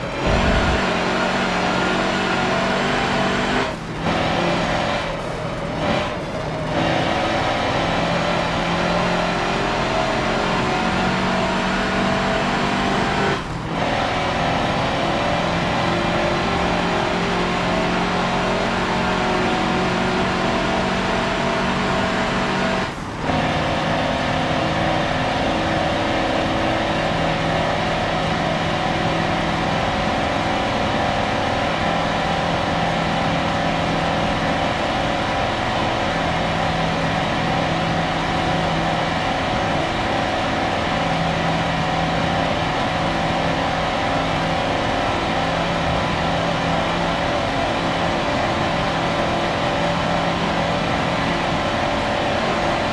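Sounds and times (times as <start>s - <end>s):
truck engine under load: 0.0s - 2.8s.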